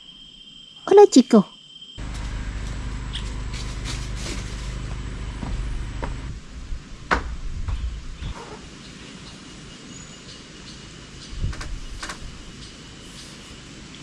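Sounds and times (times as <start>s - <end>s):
low outdoor background noise: 0.0s - 14.0s.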